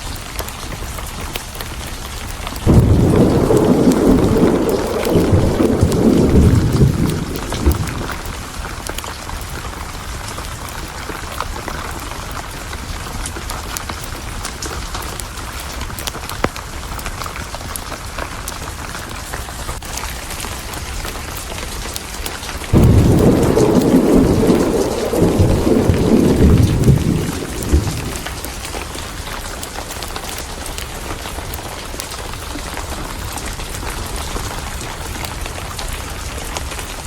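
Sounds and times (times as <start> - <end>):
heavy rain: 0.0 - 37.0
sharp crackles: 0.1 - 37.0
thunder rumbling: 2.6 - 9.0, 22.6 - 37.0.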